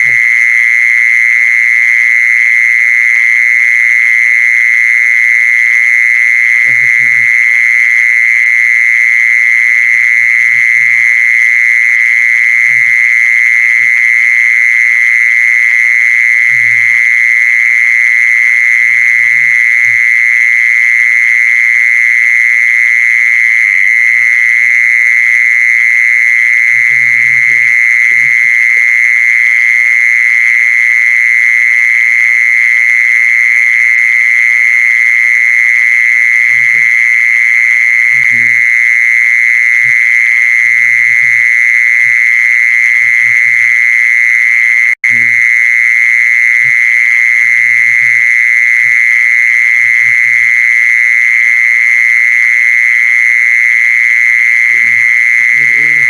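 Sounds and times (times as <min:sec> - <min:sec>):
short low croaking calls: 0:00.0 - 0:00.4, 0:06.4 - 0:08.7, 0:09.4 - 0:21.3, 0:26.6 - 0:29.3, 0:36.4 - 0:45.6, 0:46.5 - 0:50.7, 0:54.2 - 0:56.0.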